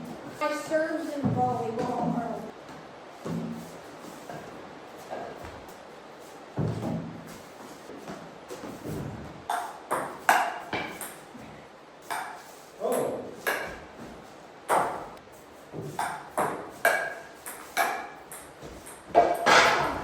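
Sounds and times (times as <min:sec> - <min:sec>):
ball hit with paddles: 0:09.5 - 0:11.3, 0:12.1 - 0:13.9, 0:14.7 - 0:20.0.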